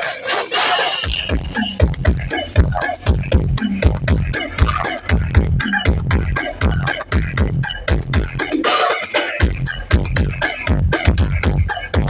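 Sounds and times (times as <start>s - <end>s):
loud electronic dance music: 0.0s - 12.0s
deep bass kicks: 1.3s - 8.4s.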